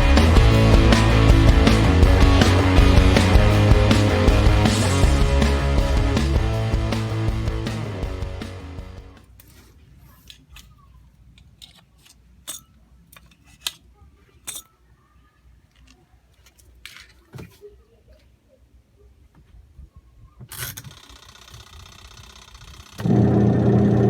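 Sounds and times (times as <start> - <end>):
small mechanical clicks and knocks: 20.5 - 23.1.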